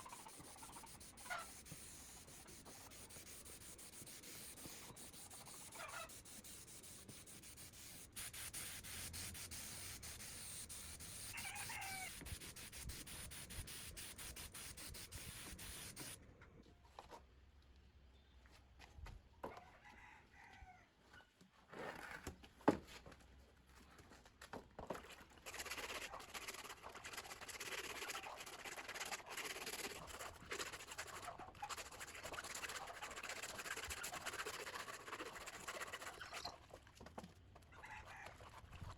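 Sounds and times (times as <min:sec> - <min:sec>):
steady rubbing noise: 0:00.0 - 0:16.2.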